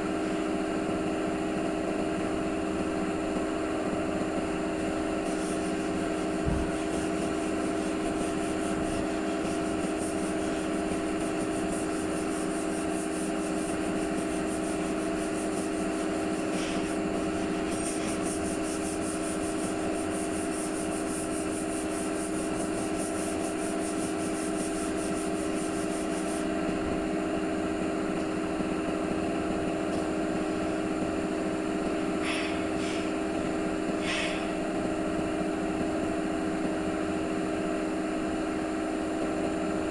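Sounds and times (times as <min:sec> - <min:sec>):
workshop motor humming: 0:00.0 - 0:39.9
short scrapes: 0:32.2 - 0:33.2.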